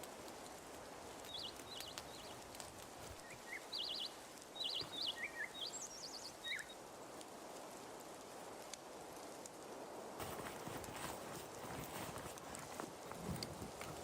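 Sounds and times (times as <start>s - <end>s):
faint clicks: 0.0s - 5.3s
background hiss: 0.0s - 14.0s
songbirds chirping: 0.9s - 7.0s.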